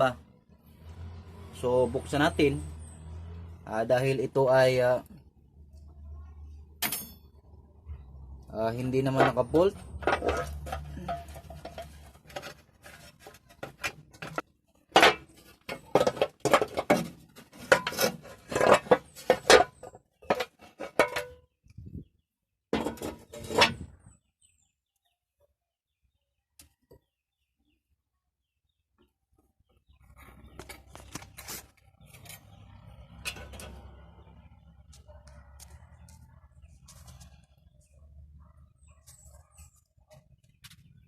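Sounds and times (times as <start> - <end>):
metal parts clanking: 9.1 - 21.4, 22.8 - 24.0.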